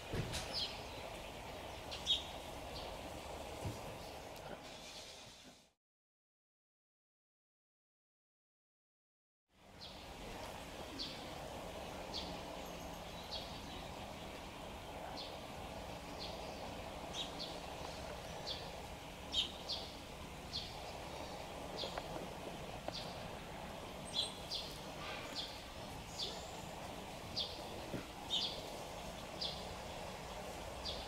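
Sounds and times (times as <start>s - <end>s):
outdoor background noise: 0.0s - 5.8s, 9.5s - 31.0s
small bird chirping: 12.1s - 23.4s, 24.0s - 31.0s.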